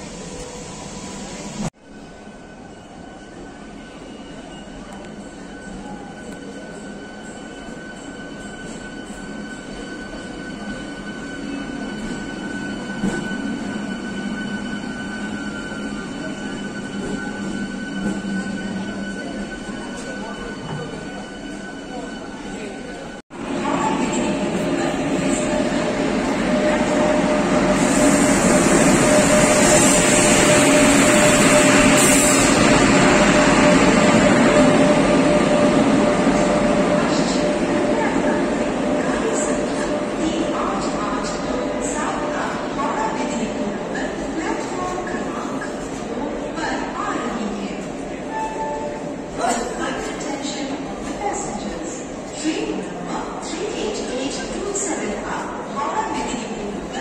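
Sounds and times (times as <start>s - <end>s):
train wheels rumbling: 23.4s - 46.0s.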